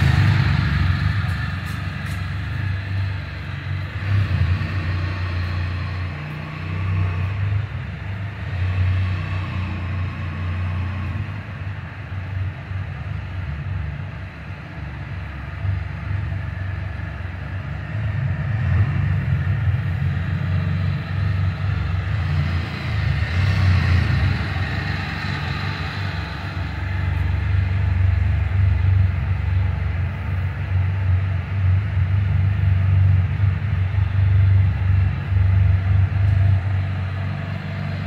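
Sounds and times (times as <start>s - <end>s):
motorcycle engine echoing: 0.0s - 6.4s.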